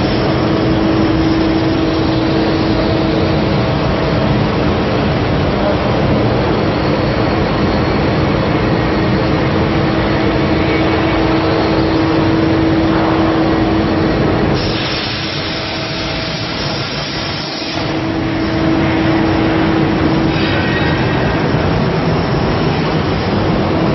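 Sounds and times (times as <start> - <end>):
machine hum: 0.0 - 23.9
cutting torch hissing: 10.7 - 22.2.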